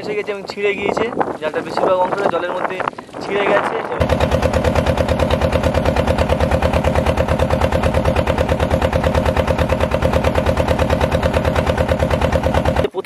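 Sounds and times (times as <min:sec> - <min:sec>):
boat diesel engine putt-putt: 0:03.9 - 0:13.0.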